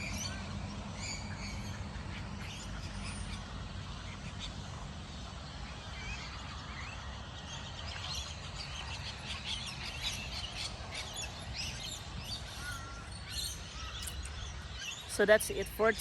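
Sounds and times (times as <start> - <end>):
small birds chirping: 5.9 - 16.0.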